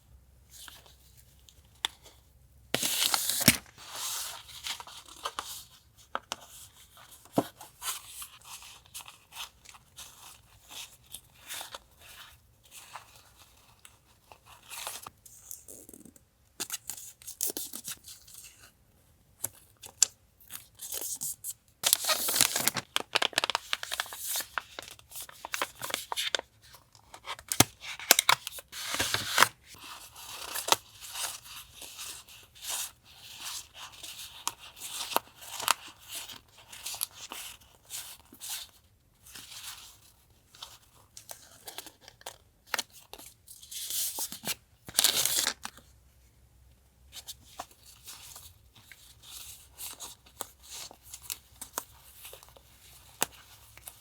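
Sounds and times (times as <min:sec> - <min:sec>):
plastic and paper rustling: 0:02.8 - 0:15.1, 0:21.8 - 0:38.6.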